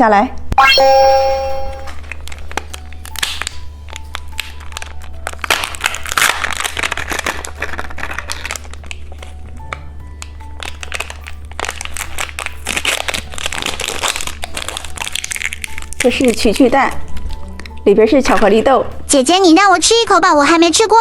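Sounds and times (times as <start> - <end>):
soft background melody: 0.0 - 21.0
plastic wrapping crinkling: 2.0 - 18.6.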